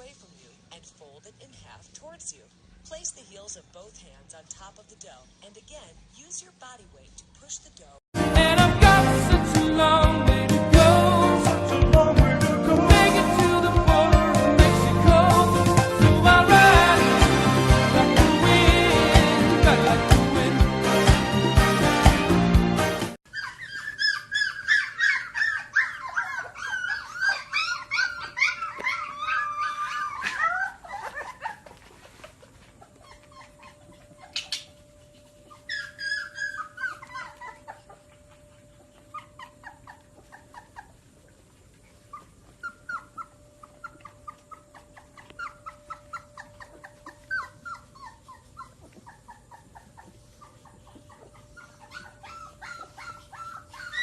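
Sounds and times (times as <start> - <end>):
dog whining and whimpering: 23.3 - 41.0, 41.9 - 54.0.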